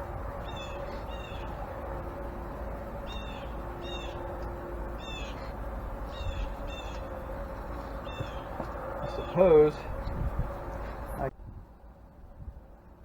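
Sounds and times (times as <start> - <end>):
steady low hum: 0.0 - 13.0
small bird chirping: 5.0 - 7.1, 8.0 - 9.4.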